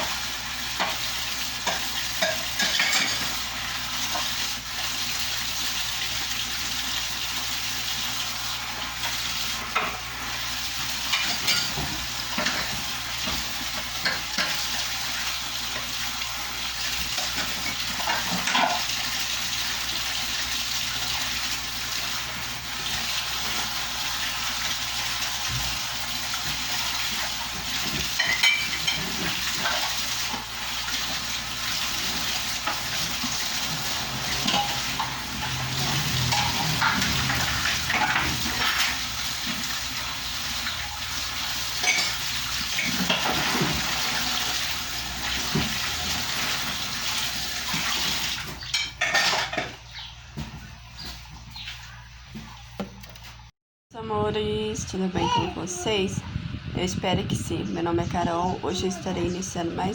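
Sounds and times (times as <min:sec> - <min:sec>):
dishes and cutlery clinking: 0:00.8 - 0:03.4, 0:11.1 - 0:14.7, 0:17.2 - 0:19.0, 0:26.4 - 0:30.5, 0:32.0 - 0:39.7, 0:41.8 - 0:44.3, 0:47.7 - 0:50.0.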